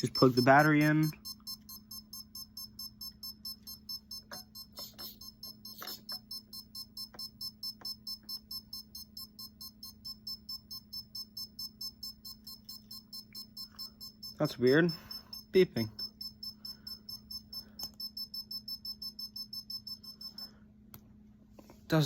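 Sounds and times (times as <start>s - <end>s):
motor controller short high beeps: 0.0s - 20.5s.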